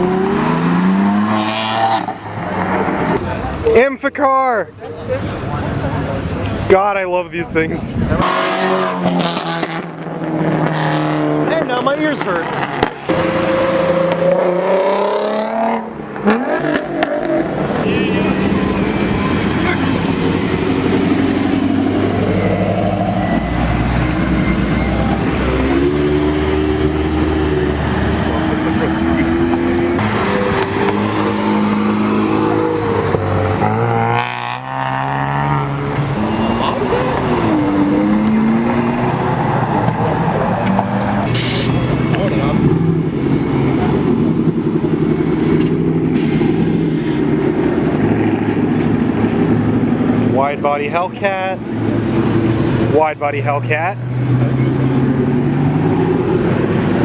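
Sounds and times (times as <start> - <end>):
car exhaust rumble: 11.4 - 57.0.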